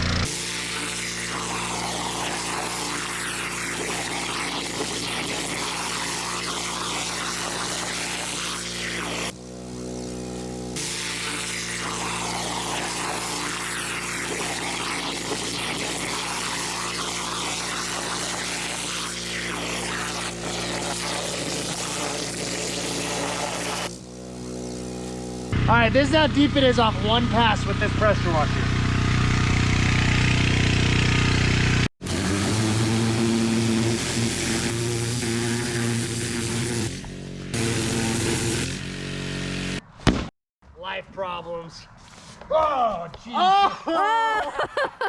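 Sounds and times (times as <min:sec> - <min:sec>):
water jet blasting soil: 0:00.0 - 0:25.6, 0:32.0 - 0:39.8
pressure washer engine drone: 0:00.0 - 0:39.8.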